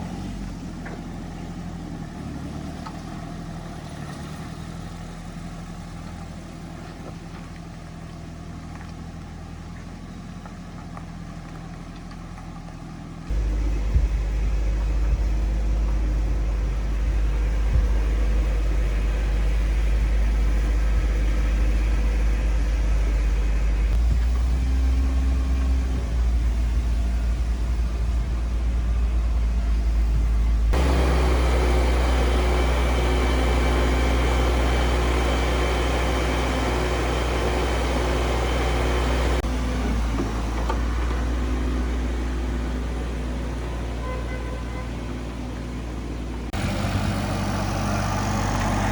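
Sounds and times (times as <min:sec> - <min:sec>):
motor humming: 0:13.3 - 0:41.7.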